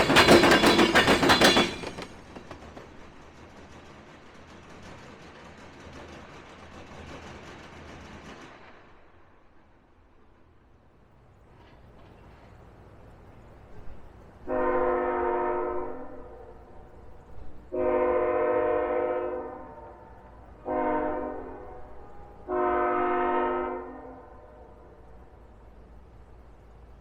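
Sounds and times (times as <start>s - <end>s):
low rumble of train: 0.0s - 27.0s
locomotive air horn blasts: 14.5s - 16.3s, 17.7s - 24.5s.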